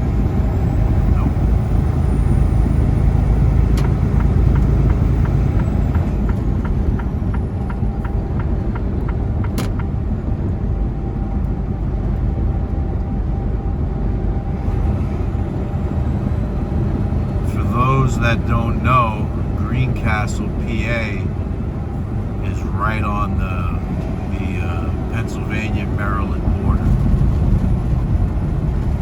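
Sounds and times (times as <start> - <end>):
truck engine and road rumble: 0.0 - 29.0
light ticking: 3.6 - 9.9.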